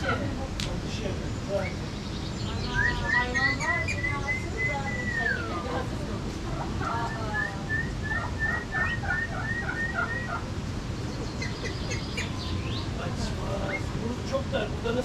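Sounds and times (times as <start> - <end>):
low background rumble: 0.0 - 15.0
chicken clucking: 6.4 - 10.5.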